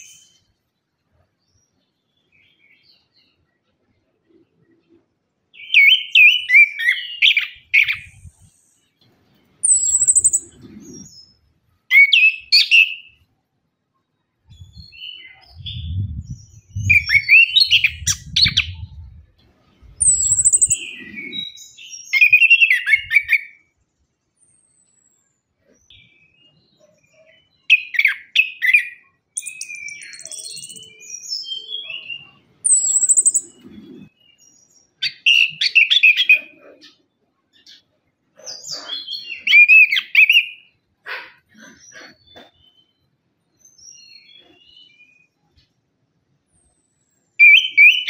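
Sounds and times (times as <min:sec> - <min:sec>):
thrush singing whistled notes: 0:05.6 - 0:08.8, 0:09.6 - 0:13.2, 0:14.5 - 0:19.0, 0:19.8 - 0:23.6, 0:27.7 - 0:34.1, 0:47.4 - 0:48.0
low rumble: 0:15.4 - 0:17.1, 0:17.7 - 0:20.0.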